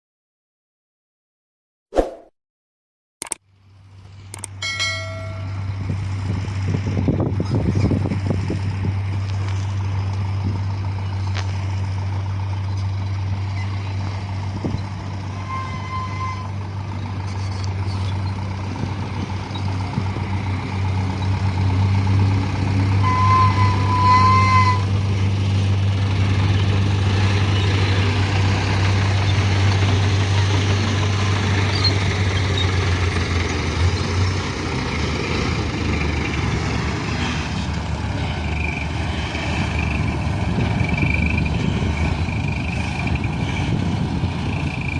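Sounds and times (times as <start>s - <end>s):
diesel truck engine running: 3.5s - 44.9s
short high beeps: 4.6s - 5.7s.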